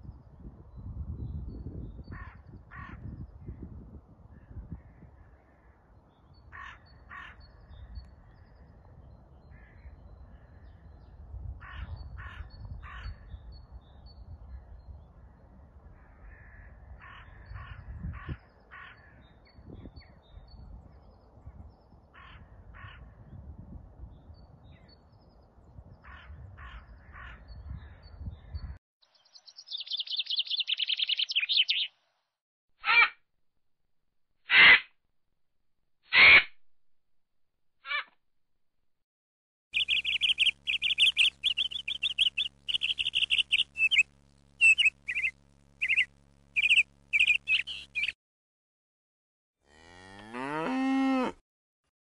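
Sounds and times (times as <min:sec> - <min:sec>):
rapid high chirping: 0:39.8 - 0:48.2.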